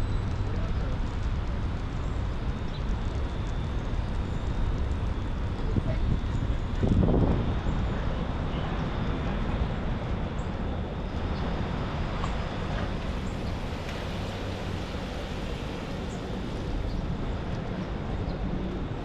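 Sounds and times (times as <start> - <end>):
low traffic rumble: 0.0 - 19.0
vehicles passing on wet street: 8.1 - 19.0.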